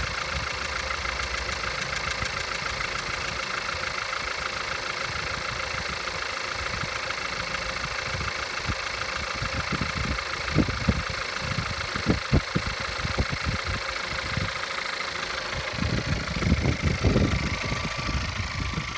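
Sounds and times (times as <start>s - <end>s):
car engine idling: 0.0s - 18.9s
dull low thumps: 15.5s - 18.9s.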